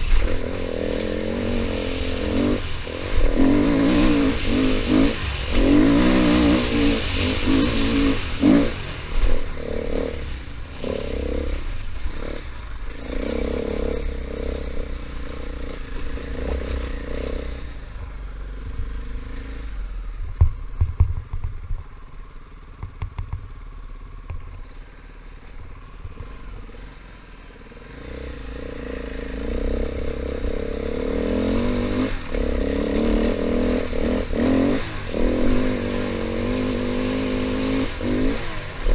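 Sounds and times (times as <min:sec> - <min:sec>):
dirt bike engine revving: 0:00.0 - 0:17.9, 0:27.9 - 0:38.9.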